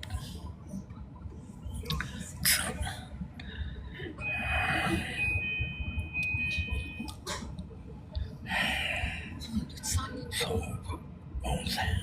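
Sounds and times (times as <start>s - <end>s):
high-pitched tones: 4.2s - 7.2s.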